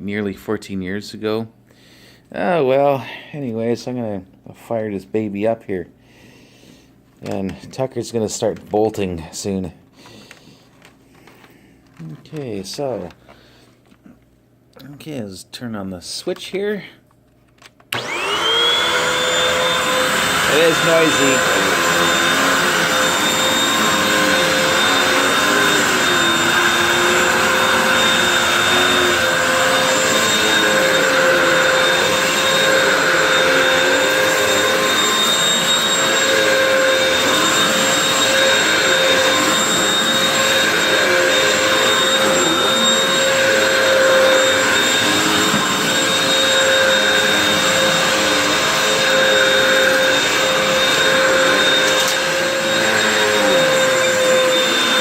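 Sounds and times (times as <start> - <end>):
vacuum cleaner running: 17.9 - 55.0.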